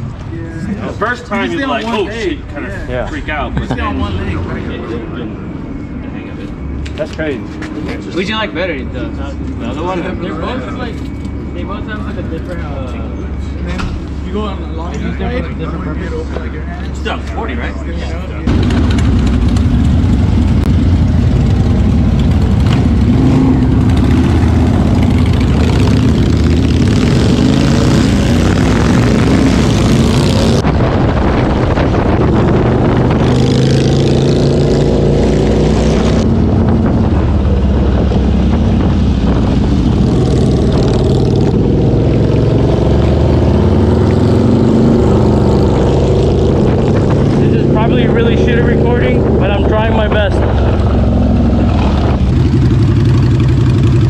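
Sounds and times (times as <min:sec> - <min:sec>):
motorcycle engine running: 0:18.5 - 0:54.0.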